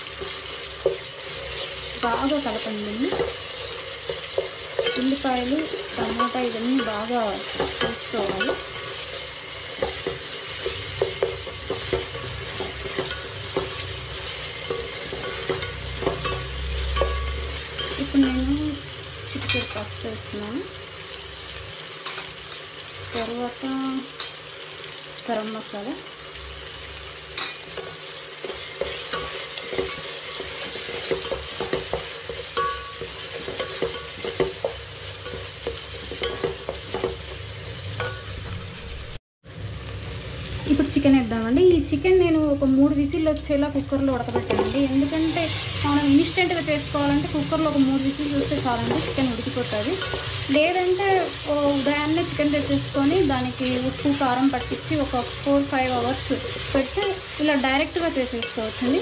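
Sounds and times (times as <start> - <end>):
masala sizzling in hot oil: 0.0 - 59.0
spoon scraping a pot: 27.3 - 37.4.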